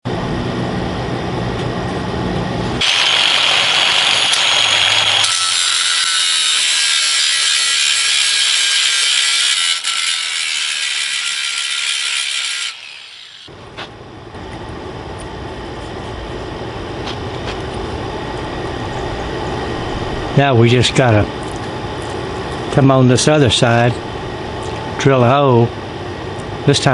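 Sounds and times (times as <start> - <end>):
power grinder grinding metal: 2.8 - 13.5.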